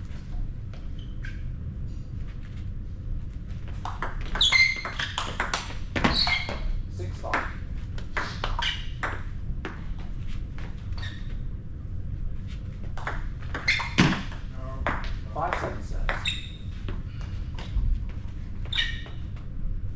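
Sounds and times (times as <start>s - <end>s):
table tennis ball knocking: 3.8s - 6.6s, 13.0s - 16.5s.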